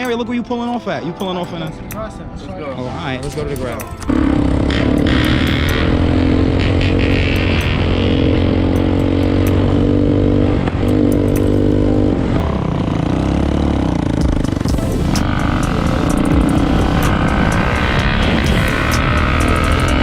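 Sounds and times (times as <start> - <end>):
dirt bike engine running: 4.1 - 20.0.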